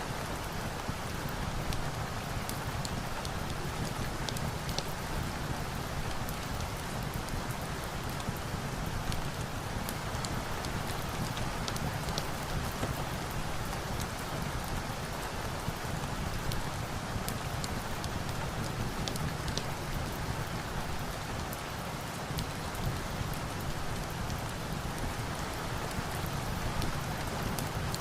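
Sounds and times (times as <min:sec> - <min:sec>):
steady rain falling: 0:00.0 - 0:28.0
log fire crackling and popping: 0:02.4 - 0:07.6, 0:08.2 - 0:21.5.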